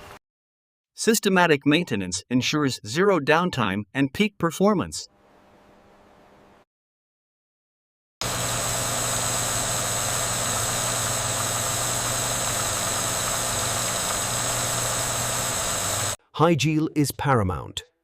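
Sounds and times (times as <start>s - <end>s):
machine humming: 8.2s - 16.2s.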